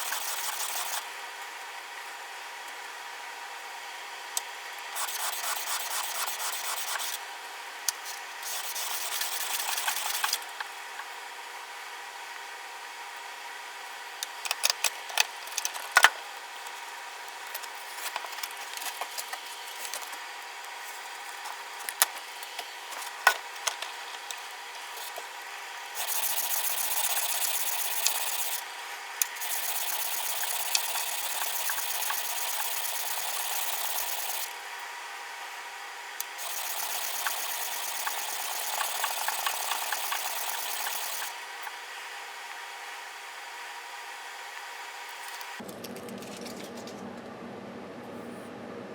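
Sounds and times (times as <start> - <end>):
plane iron rubbed on abrasive: 8.5 - 10.3, 29.4 - 34.5, 36.4 - 41.3.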